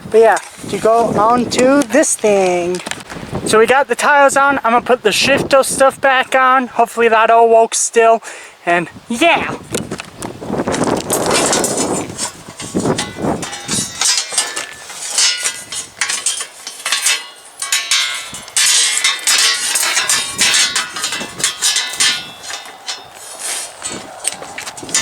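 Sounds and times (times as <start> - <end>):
dull handling noise: 9.7 - 25.0
metal parts clinking: 10.9 - 25.0.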